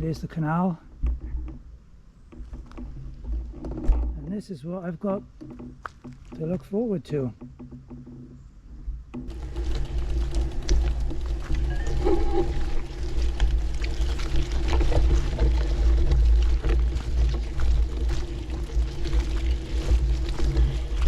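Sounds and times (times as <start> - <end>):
bike rattling over bumpy path: 0.0 - 21.0
steady low hum: 8.6 - 21.0
wind on microphone: 8.7 - 21.0.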